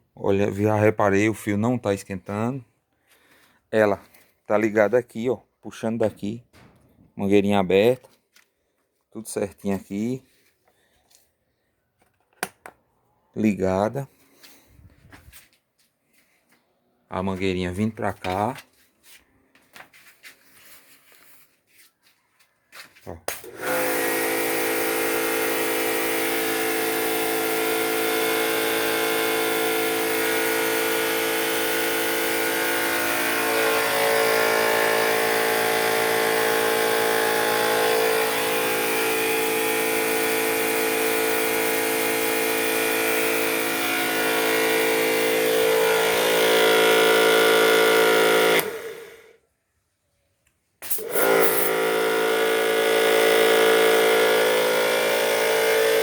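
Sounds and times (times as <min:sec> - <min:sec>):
electric pressure washer humming: 0:23.3 - 0:49.3, 0:50.8 - 0:56.0.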